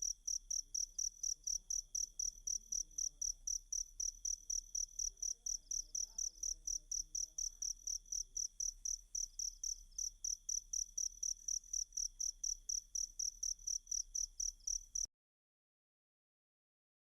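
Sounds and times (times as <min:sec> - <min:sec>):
cricket chirping: 0:00.0 - 0:15.1.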